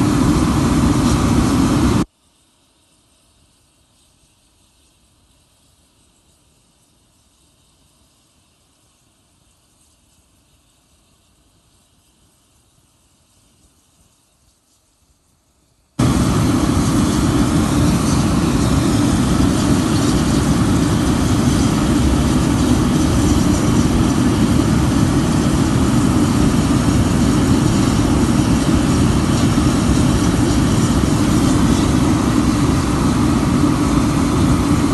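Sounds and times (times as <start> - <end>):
burner combustion roar: 0.0 - 2.1, 16.0 - 34.9.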